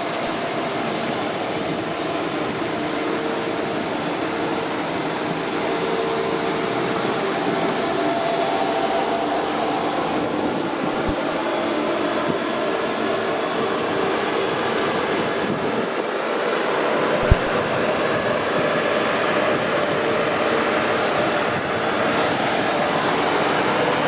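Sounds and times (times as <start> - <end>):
sharp knock: 17.2 - 17.6.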